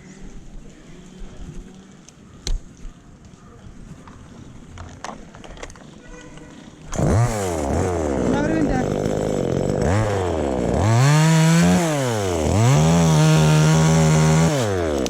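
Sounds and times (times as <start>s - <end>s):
chainsaw engine revving: 6.5s - 15.0s.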